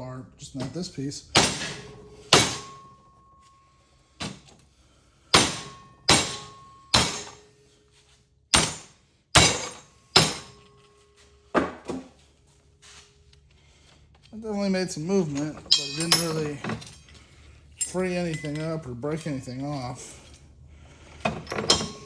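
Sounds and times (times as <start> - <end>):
hammer striking metal: 1.3 - 3.3, 5.3 - 7.5, 8.5 - 10.8, 15.7 - 16.4.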